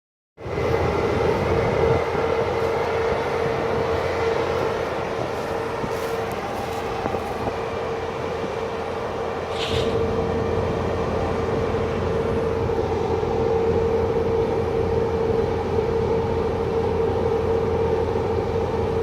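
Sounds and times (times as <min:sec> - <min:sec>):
harvest machinery running: 0:00.4 - 0:19.0.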